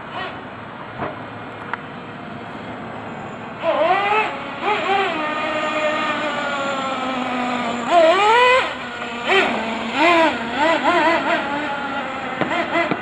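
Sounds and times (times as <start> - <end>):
radio-controlled truck motor revving: 2.8 - 13.0.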